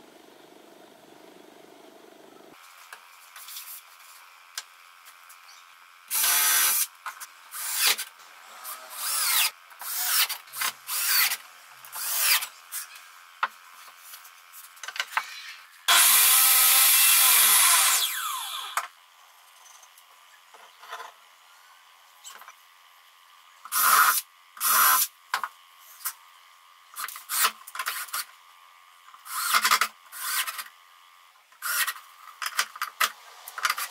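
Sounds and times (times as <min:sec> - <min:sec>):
cordless drill drilling into wood: 0:06.1 - 0:06.9, 0:08.6 - 0:10.3, 0:10.9 - 0:11.4, 0:12.0 - 0:12.5, 0:15.9 - 0:18.8.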